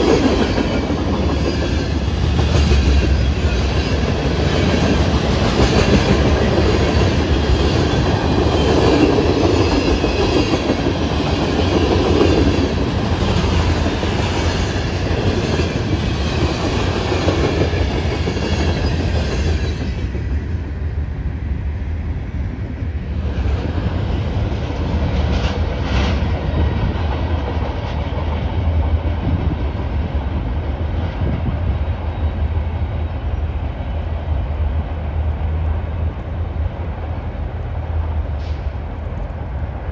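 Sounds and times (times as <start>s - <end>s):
train wheels rattling on rails: 0.0s - 39.9s.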